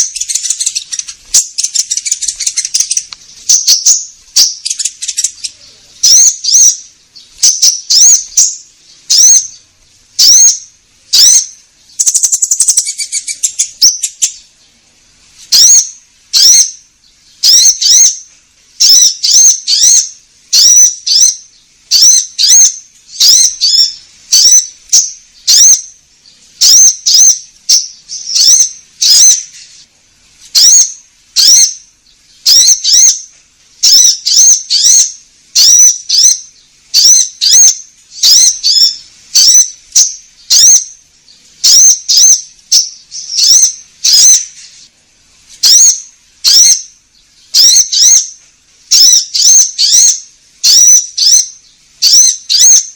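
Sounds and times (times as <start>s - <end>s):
bird buzzy rattling trill: 0.0s - 44.9s, 45.5s - 52.9s
bird chirping: 0.0s - 44.9s, 45.5s - 52.9s.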